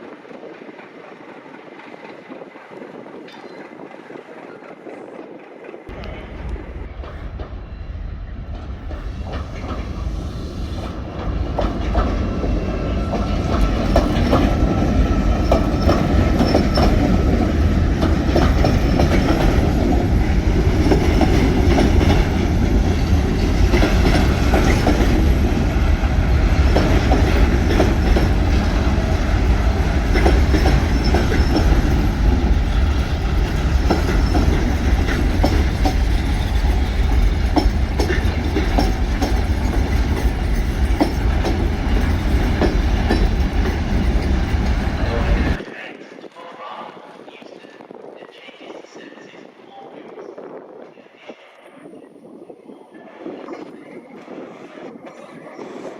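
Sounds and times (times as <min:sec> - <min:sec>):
heavy train rumble: 0:00.0 - 0:45.6
train wheels clicking over rail joints: 0:08.5 - 0:45.6.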